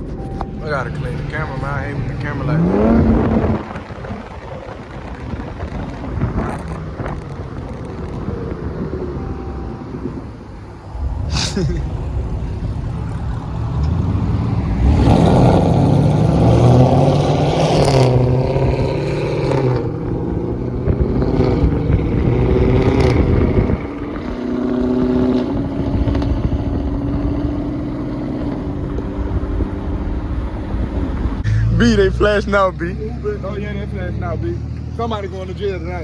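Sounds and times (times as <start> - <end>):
car engine accelerating: 0.0 - 36.0.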